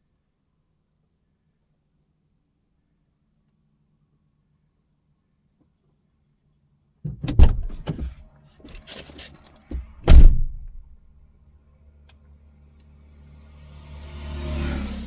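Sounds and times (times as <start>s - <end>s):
car door thunks: 7.1s - 8.8s, 9.7s - 11.0s.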